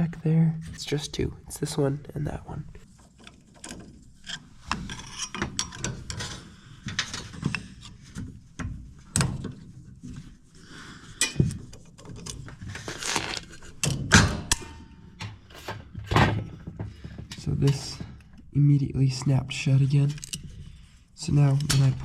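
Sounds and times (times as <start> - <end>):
screwdriver clicking and scraping: 2.9 - 8.0.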